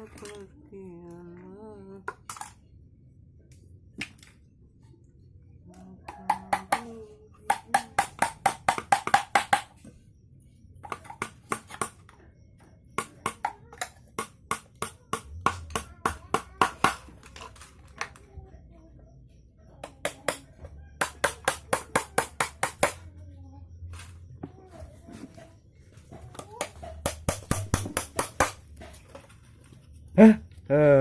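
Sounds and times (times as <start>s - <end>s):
rapid tapping on hollow object: 6.1s - 9.7s, 26.6s - 28.6s.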